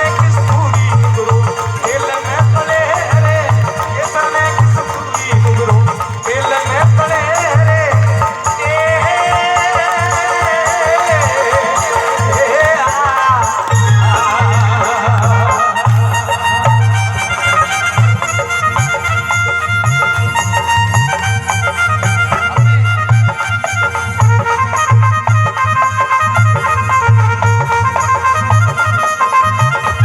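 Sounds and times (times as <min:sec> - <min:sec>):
drum beating steady rhythm: 0:00.0 - 0:30.0
sustained melody instrument: 0:00.0 - 0:30.0.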